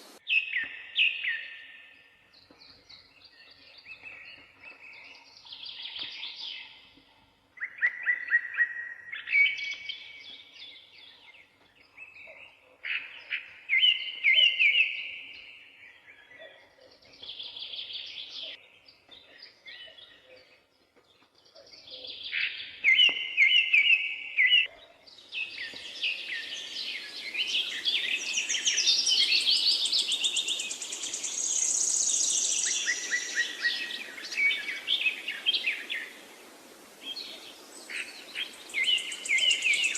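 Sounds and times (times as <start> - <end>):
faint hiss: 0.0 - 0.2, 25.3 - 39.9
songbirds chirping: 0.0 - 39.9.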